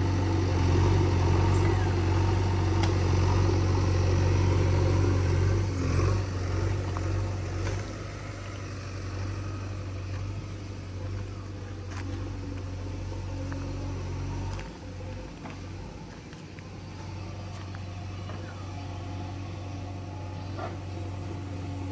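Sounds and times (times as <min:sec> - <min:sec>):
diesel engine running: 0:00.0 - 0:21.9.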